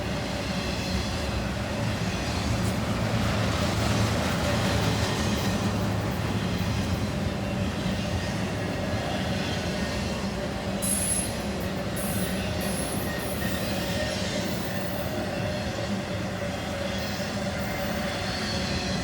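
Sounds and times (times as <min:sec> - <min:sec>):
freight train rumbling on rails: 0:00.0 - 0:19.0
train wheel squeal: 0:00.0 - 0:19.0.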